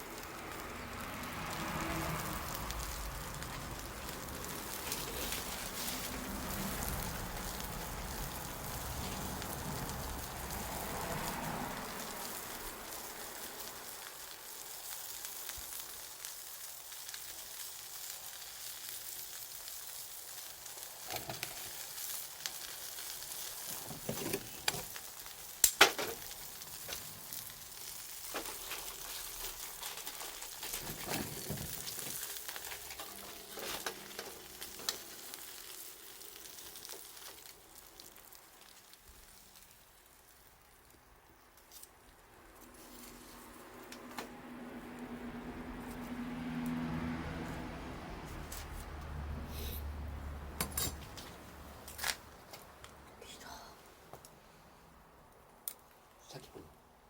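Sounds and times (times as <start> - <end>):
sharp pops from fire: 0.0 - 42.2
bonfire crackling and hissing: 0.0 - 57.0.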